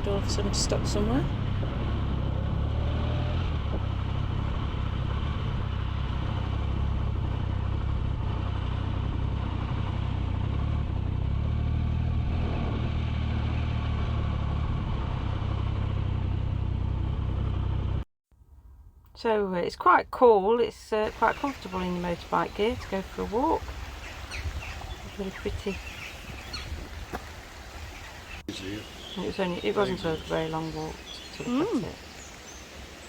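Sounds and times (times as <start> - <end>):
motorcycle engine running: 0.0 - 18.0
wind and road noise: 0.0 - 18.0, 21.0 - 33.0.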